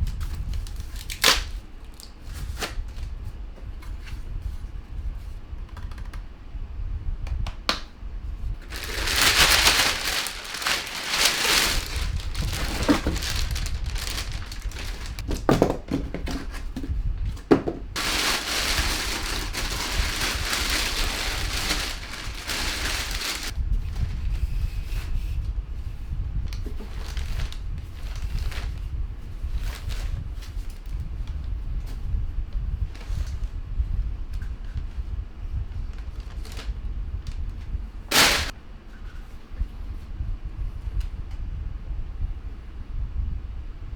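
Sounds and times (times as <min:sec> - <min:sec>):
plastic packaging crinkling: 0:00.6 - 0:02.7, 0:08.6 - 0:16.9, 0:17.5 - 0:23.6, 0:26.8 - 0:28.8, 0:36.1 - 0:36.7, 0:38.1 - 0:38.6.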